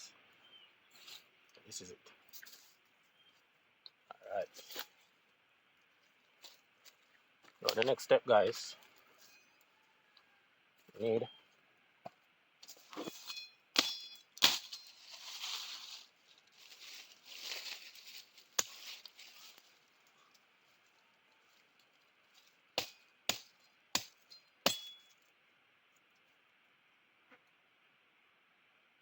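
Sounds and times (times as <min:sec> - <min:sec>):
twigs and leaves rustling: 0:00.3 - 0:09.8, 0:12.6 - 0:22.7.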